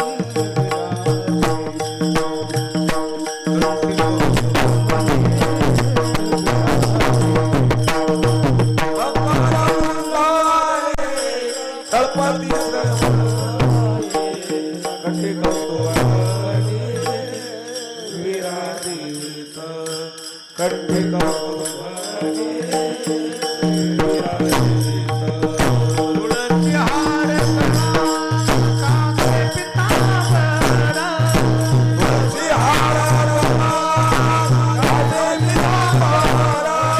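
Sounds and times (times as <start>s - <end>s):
hand drum beating: 0.0s - 10.4s, 12.0s - 17.0s, 22.9s - 36.9s.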